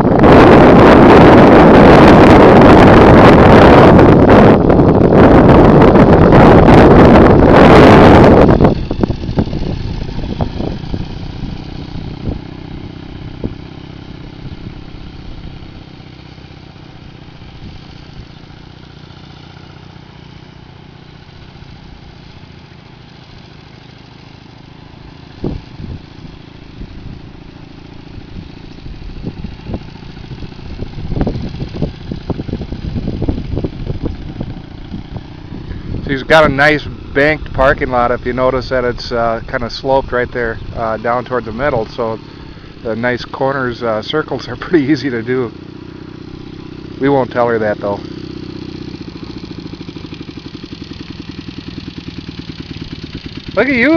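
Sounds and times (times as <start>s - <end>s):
wind rush on microphone: 0.0s - 15.9s, 25.4s - 45.6s
motorcycle engine running: 0.0s - 53.9s.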